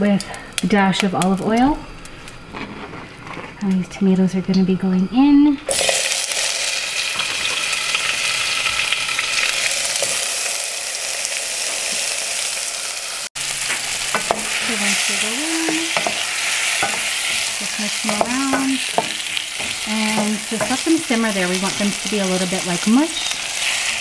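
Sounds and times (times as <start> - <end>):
wooden spoon scraping pot: 2.2 - 4.1, 13.7 - 22.6
tomatoes sizzling in oil: 4.6 - 24.0.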